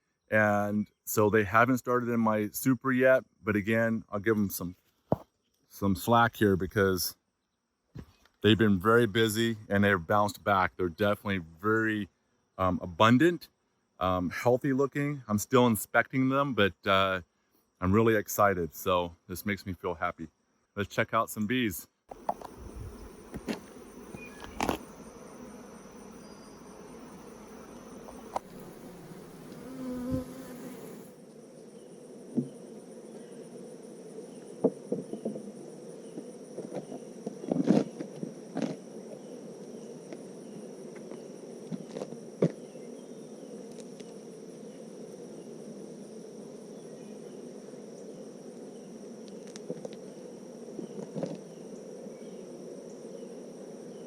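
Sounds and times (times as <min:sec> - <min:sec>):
honeybees buzzing: 0:22.1 - 0:54.0.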